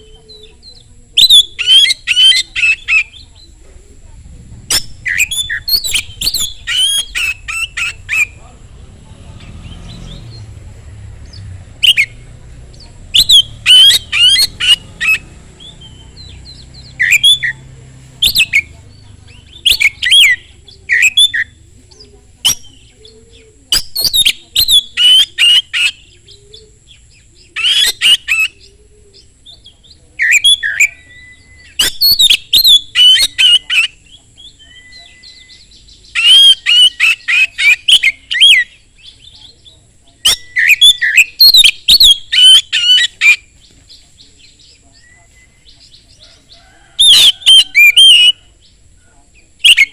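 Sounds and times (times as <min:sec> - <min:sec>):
bird singing: 0:00.0 - 0:49.9.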